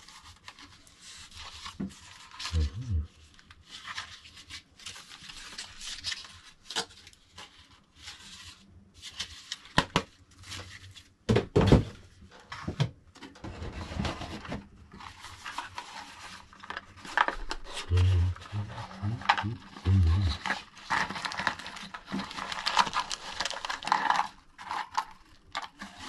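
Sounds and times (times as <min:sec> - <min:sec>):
packaging rustling and scraping: 0:00.0 - 0:11.2, 0:13.3 - 0:26.0.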